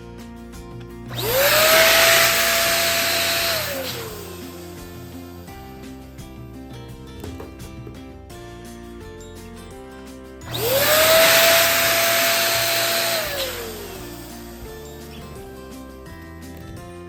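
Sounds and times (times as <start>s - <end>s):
background music: 0.0s - 17.0s
electric balloon pump: 1.1s - 6.1s, 10.4s - 15.6s.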